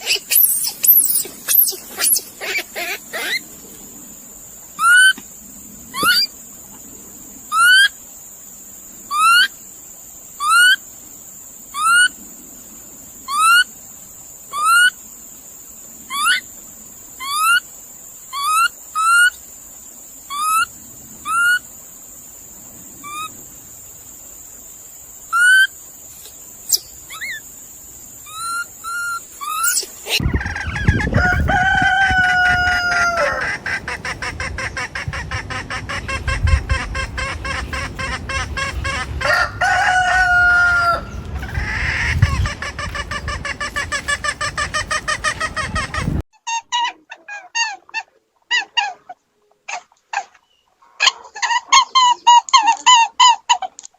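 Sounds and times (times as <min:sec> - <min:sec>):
fowl calls: 0:28.3 - 0:53.8
rooster crowing: 0:30.2 - 0:33.8, 0:39.1 - 0:41.8.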